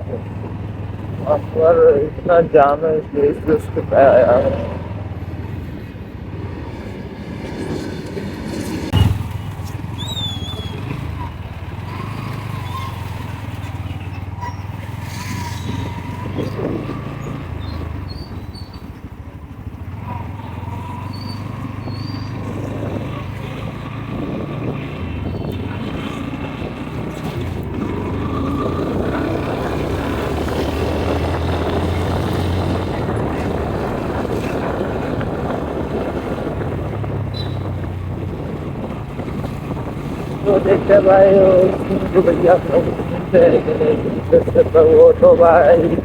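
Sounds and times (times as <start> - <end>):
motorcycle engine running: 0.0 - 7.4, 8.5 - 46.0
wind rushing over microphone: 14.8 - 46.0.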